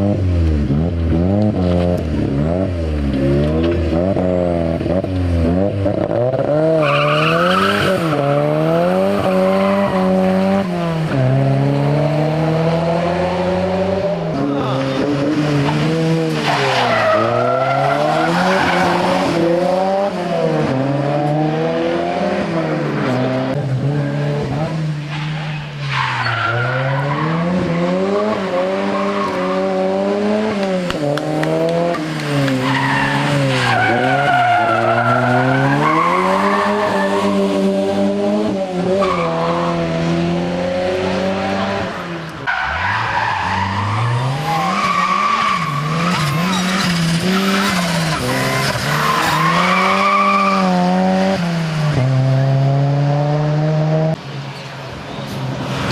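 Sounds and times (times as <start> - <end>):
rally car engine revving: 0.0 - 54.3
tyre squeal: 42.5 - 50.7.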